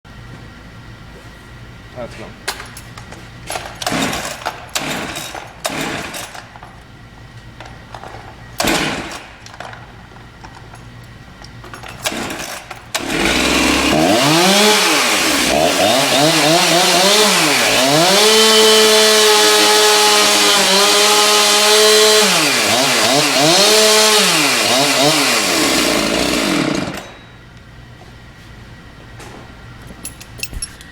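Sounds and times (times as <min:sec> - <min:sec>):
chainsaw revving: 0:03.6 - 0:06.5, 0:08.6 - 0:09.8, 0:11.9 - 0:27.2.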